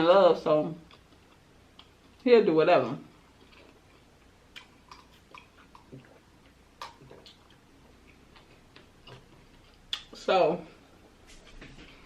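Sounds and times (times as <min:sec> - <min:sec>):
soft chewing clicks: 0:00.8 - 0:02.3, 0:03.1 - 0:10.2.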